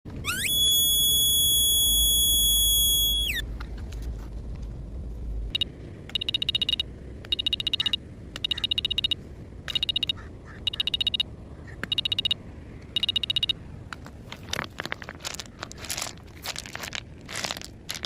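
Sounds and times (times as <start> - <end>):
high electronic tone: 0.2 - 3.4, 5.6 - 11.3, 11.9 - 12.4, 13.0 - 13.6
animal clicking trills: 7.3 - 11.2.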